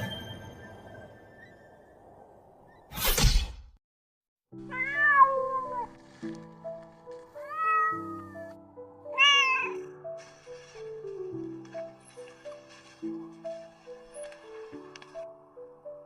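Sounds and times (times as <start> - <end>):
simple background music: 4.5 - 16.0
cat meowing: 4.7 - 5.9, 7.4 - 8.4, 9.1 - 9.9.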